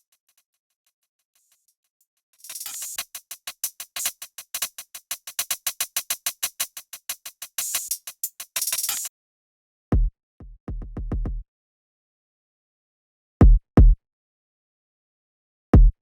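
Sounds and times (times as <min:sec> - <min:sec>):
deep kick drum hits: 0:13.4 - 0:14.0.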